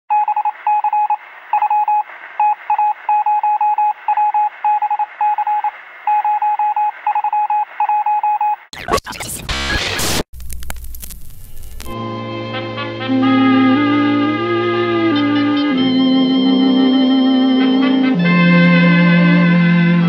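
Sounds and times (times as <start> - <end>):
morse code beeps: 0.1 - 8.7
radio hiss: 8.8 - 10.3.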